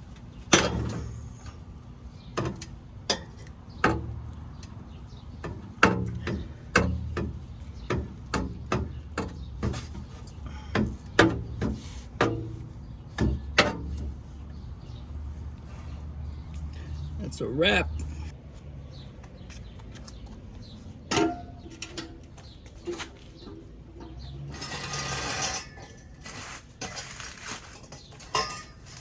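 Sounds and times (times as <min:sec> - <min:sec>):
metal pipes knocking and clanking: 0:00.3 - 0:14.6, 0:21.0 - 0:26.2, 0:26.8 - 0:29.0.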